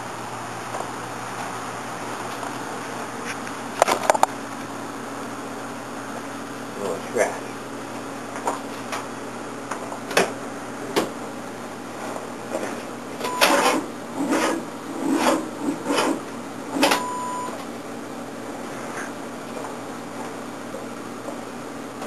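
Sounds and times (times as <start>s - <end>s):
short beeps: 13.2s - 13.6s, 16.9s - 17.6s.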